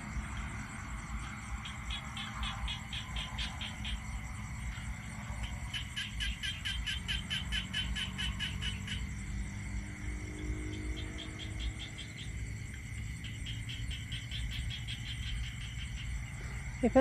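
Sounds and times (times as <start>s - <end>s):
frog calling in rapid pulses: 1.5s - 4.2s, 5.3s - 9.2s, 10.5s - 12.4s, 13.2s - 17.0s.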